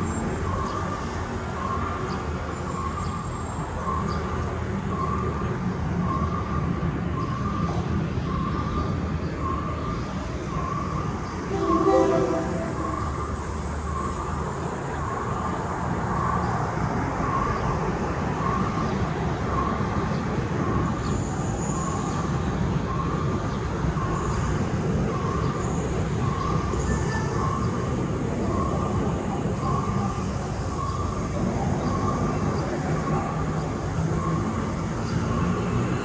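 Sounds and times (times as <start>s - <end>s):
diesel train passing: 11.4s - 14.8s
ringing tone: 11.5s - 13.8s.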